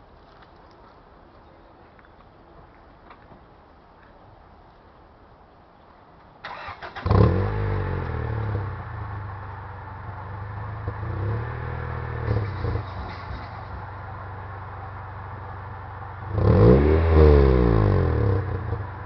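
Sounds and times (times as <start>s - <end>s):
car engine starting and idling: 6.4s - 19.0s.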